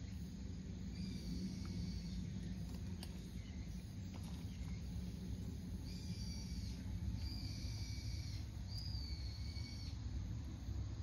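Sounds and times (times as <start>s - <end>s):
bird whistled notes: 5.8s - 10.0s.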